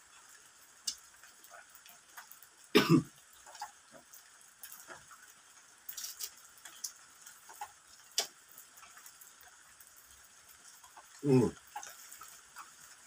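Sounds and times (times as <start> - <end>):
crunching and chewing: 5.9 - 9.6, 10.7 - 12.8.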